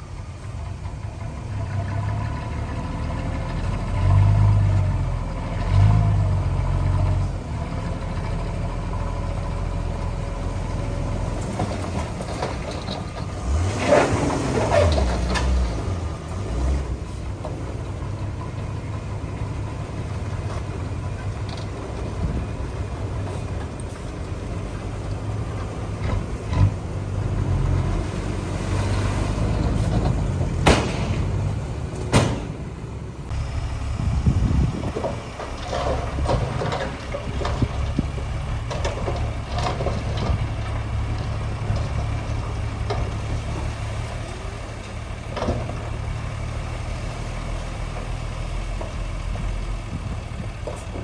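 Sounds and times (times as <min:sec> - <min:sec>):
heavy diesel machinery rumbling: 0:00.0 - 0:51.0
sharp metallic clanks: 0:30.6 - 0:32.8.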